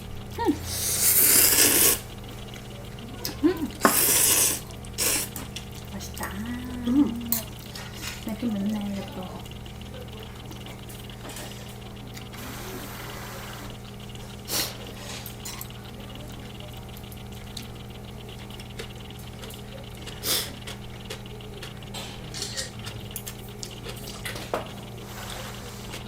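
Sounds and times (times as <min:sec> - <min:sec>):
steady low hum: 0:00.0 - 0:26.0
chopsticks clinking on dishes: 0:07.1 - 0:08.3, 0:20.3 - 0:24.6.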